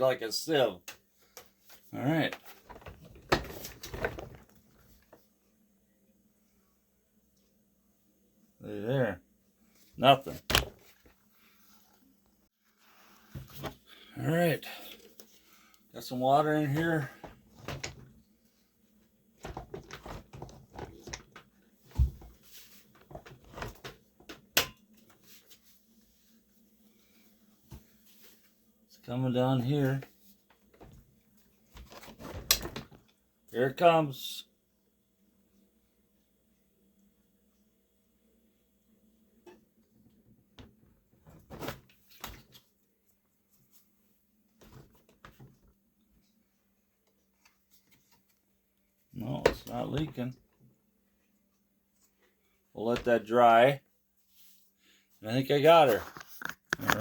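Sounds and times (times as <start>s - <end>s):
plastic parts clattering: 2.4s - 4.6s.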